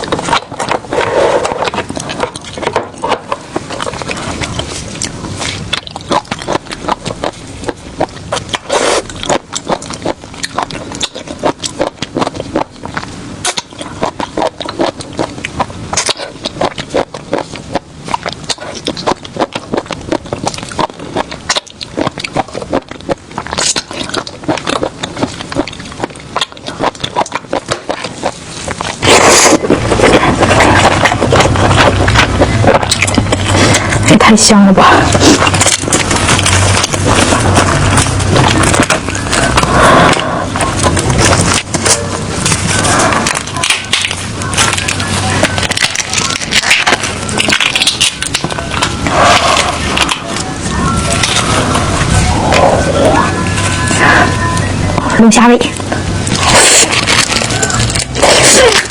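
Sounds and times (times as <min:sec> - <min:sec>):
shells cracking and utensils scraping: 0:35.2 - 0:50.5, 0:56.2 - 0:58.9.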